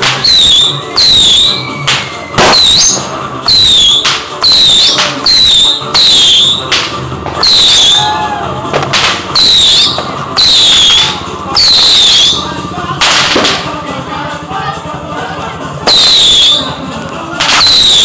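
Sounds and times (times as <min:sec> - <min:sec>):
shrill firework whistles: 0:00.2 - 0:06.7, 0:07.4 - 0:08.3, 0:09.4 - 0:12.5, 0:15.9 - 0:16.8, 0:17.6 - 0:18.0.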